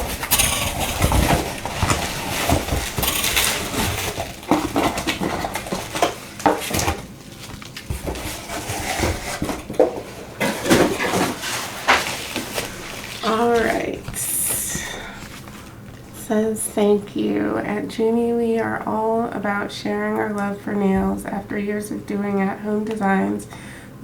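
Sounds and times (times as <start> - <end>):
small hard items clinking: 0.0 - 15.8
packaging rustling: 0.0 - 16.2.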